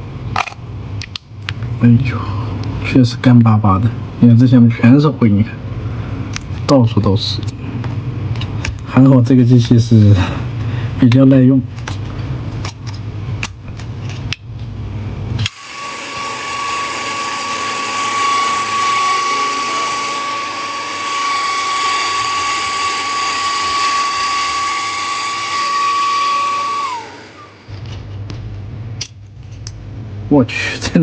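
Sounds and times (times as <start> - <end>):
electric blower whining: 15.4 - 28.0.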